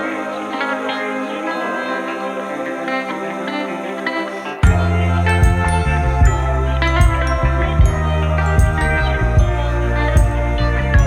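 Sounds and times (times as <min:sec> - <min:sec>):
soft new-age music: 0:00.0 - 0:11.0.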